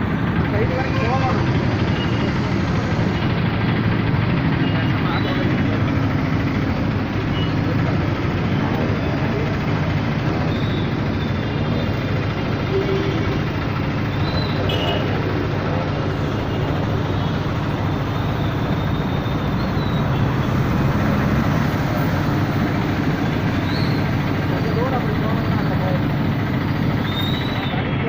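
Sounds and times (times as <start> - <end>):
faint voices: 0.0 - 18.8
traffic engines running: 0.0 - 28.0.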